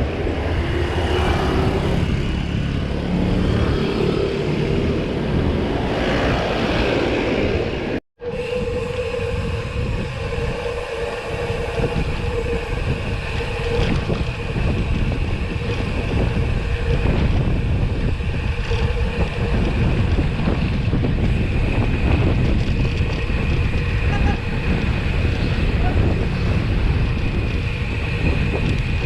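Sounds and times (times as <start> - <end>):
wind buffeting microphone: 0.0 - 29.0
steady humming drone: 8.2 - 29.0.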